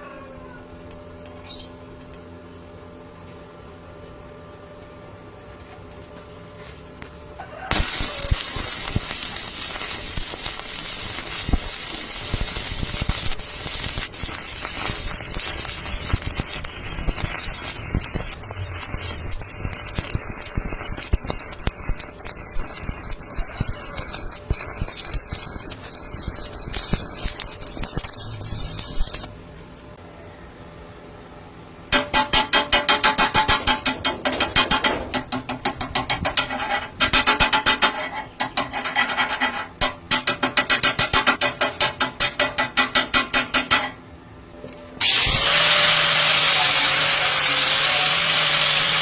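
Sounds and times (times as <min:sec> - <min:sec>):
welding arc crackling: 0:07.7 - 0:29.4, 0:45.0 - 0:49.0.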